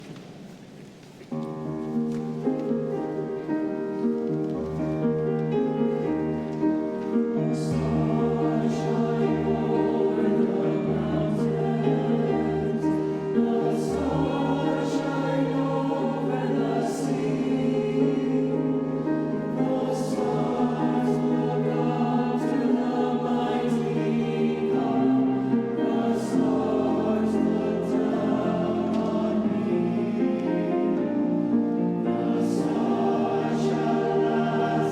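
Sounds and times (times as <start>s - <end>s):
choir singing in harmony: 2.3s - 34.9s.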